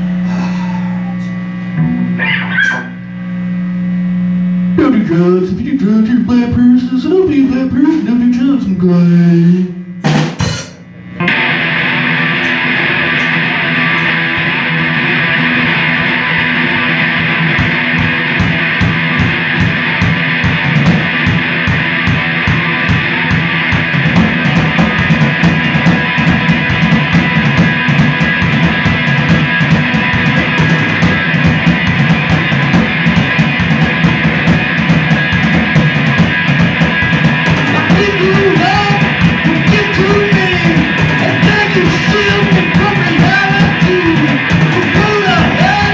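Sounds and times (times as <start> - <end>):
drum kit: 0.0 - 3.0, 4.7 - 45.9
person singing: 0.2 - 2.0, 37.6 - 45.9
live rock band playing: 1.1 - 3.1, 4.6 - 45.9.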